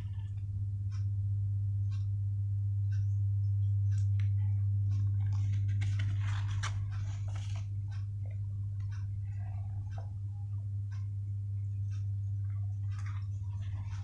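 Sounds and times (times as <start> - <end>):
steady low hum: 0.0 - 14.0
paper rustling and crinkling: 5.0 - 7.7.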